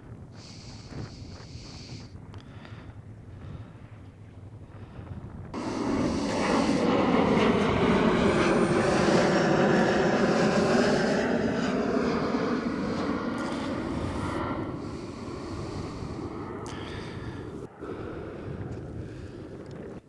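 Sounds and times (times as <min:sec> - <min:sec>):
jet plane passing overhead: 0:05.5 - 0:20.0.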